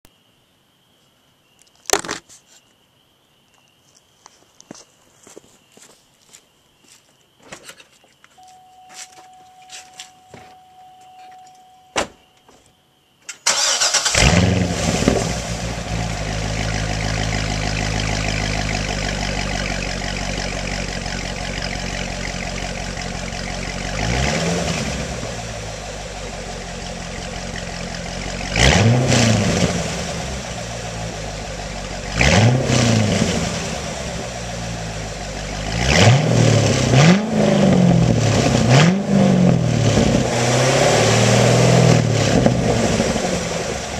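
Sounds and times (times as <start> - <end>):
car engine starting and revving: 13.4 - 43.9.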